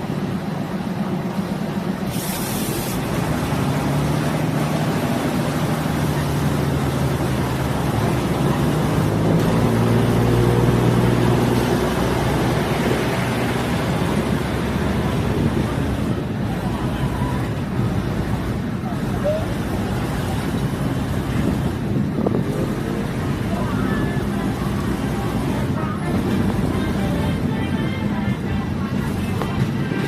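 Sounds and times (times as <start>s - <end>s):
diesel railcar engine running: 0.0s - 30.0s
train rolling noise: 0.0s - 30.0s.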